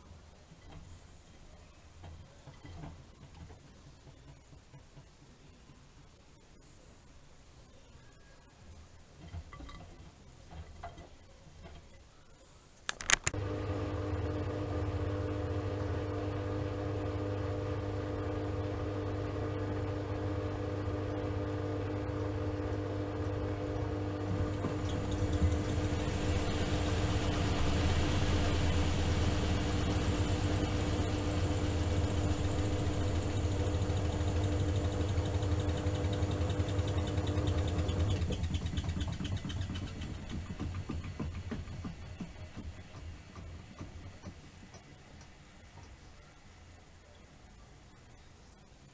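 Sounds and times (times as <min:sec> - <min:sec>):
sharp clicks: 0:12.8 - 0:13.4
washing machine motor hum: 0:13.0 - 0:45.6.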